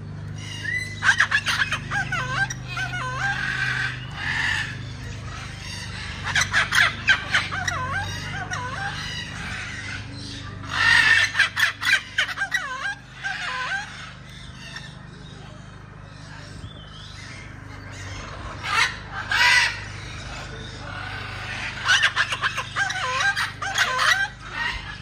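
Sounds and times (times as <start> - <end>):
birds whistling calls: 0.0 - 25.0
steady low hum: 0.0 - 25.0.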